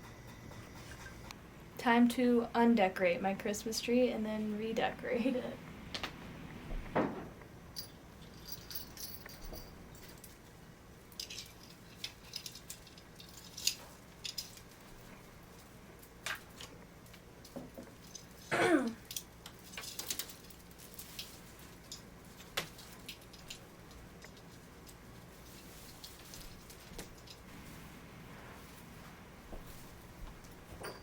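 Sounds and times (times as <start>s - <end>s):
ornaments clicking and clinking: 7.7s - 10.4s, 11.1s - 27.5s.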